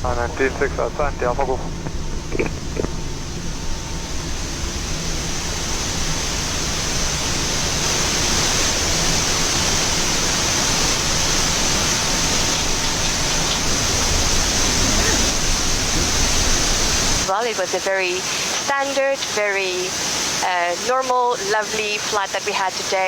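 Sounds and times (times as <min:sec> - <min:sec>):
low hum: 0:00.0 - 0:17.3.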